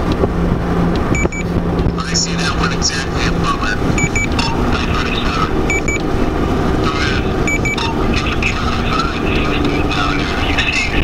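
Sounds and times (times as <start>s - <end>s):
steady rushing noise: 0.0s - 11.0s
high electronic double beep: 1.2s - 1.5s, 4.0s - 4.6s, 5.7s - 6.0s, 7.5s - 8.0s.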